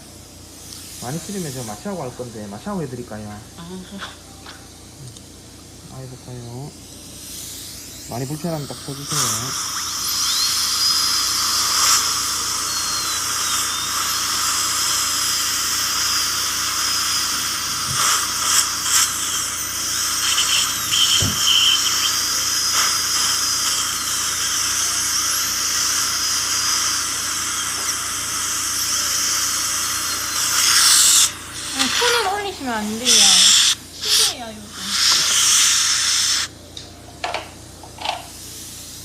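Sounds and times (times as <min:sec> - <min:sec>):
dental drill whine: 0:00.0 - 0:39.0
hiss of air and water spray: 0:07.2 - 0:32.2, 0:33.0 - 0:36.6.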